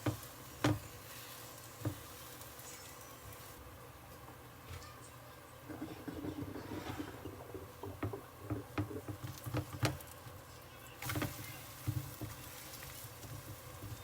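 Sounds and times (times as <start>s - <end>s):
objects knocking and clicking: 5.7s - 10.2s.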